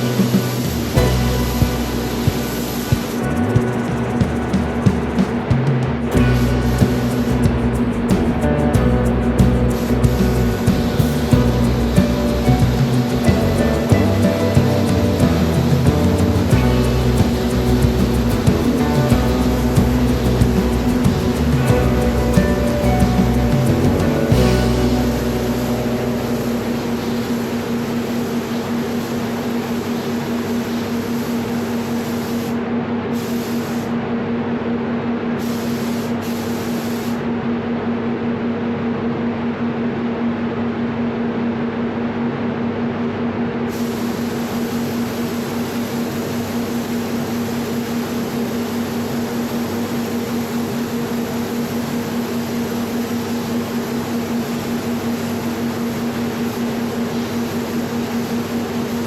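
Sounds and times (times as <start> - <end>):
spray gun hissing: 0.0 - 5.2, 6.1 - 8.6, 9.2 - 32.6, 33.2 - 33.9, 35.4 - 37.2, 43.7 - 59.0
steady low hum: 0.0 - 31.9.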